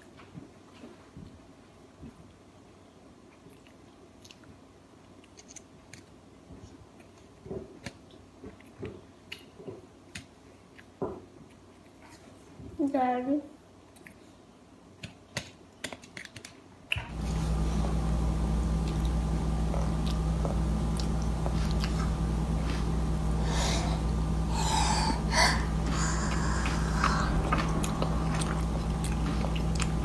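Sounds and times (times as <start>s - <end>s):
low room hum: 0.0s - 30.0s
toddler chewing with mouth smacks: 3.2s - 12.5s, 13.8s - 14.4s, 18.9s - 22.9s, 25.8s - 30.0s.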